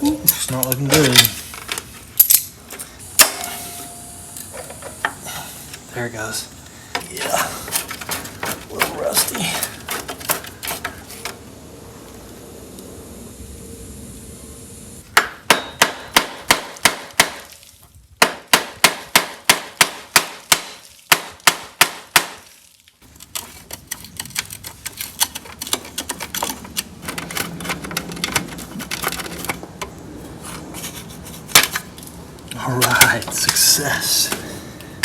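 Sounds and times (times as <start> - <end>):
ringing metal-on-metal strokes: 3.2 - 4.2.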